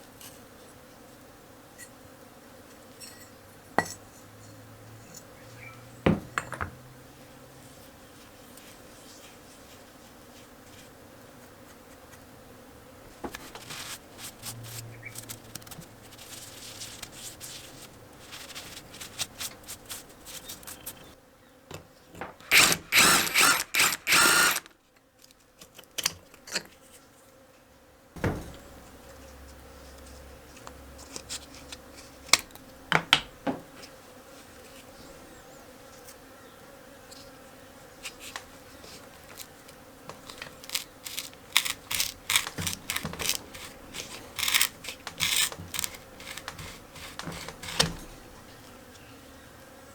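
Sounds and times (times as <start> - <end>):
rapid ratchet clicking: 22.4 - 24.7, 40.6 - 47.8.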